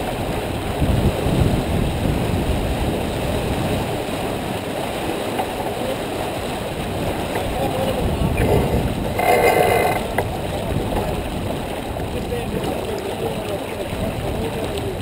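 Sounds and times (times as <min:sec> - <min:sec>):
water rushing along boat hull: 0:00.0 - 0:15.0
wind buffeting microphone: 0:00.0 - 0:15.0.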